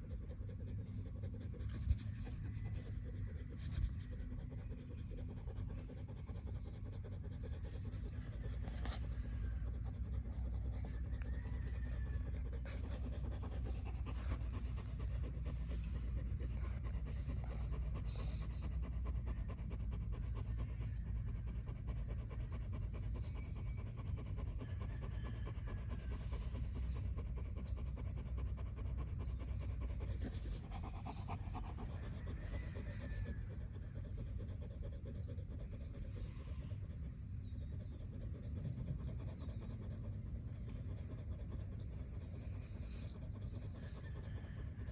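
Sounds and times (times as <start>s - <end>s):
dog panting: 0.0s - 44.9s.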